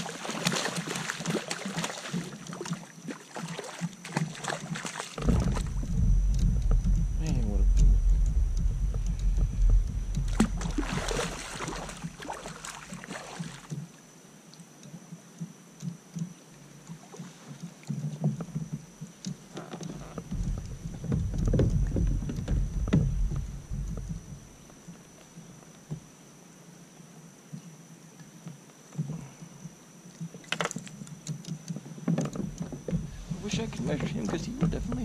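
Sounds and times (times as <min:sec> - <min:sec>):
water splashing around a kayak: 0:00.0 - 0:14.8, 0:16.5 - 0:26.9, 0:27.9 - 0:35.0
knocks on kayak hull: 0:05.2 - 0:12.2, 0:20.2 - 0:24.5.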